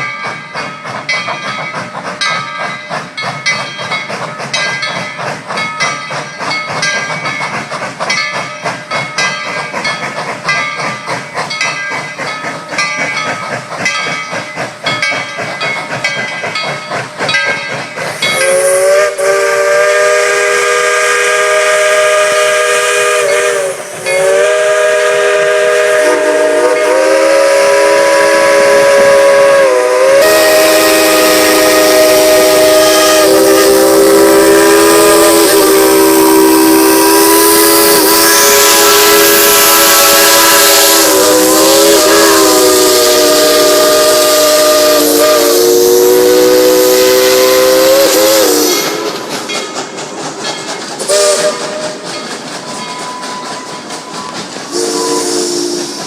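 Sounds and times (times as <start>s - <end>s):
steam locomotive exhaust chuffing: 0.0s - 56.0s
locomotive chime whistle: 17.3s - 49.8s, 51.1s - 56.0s.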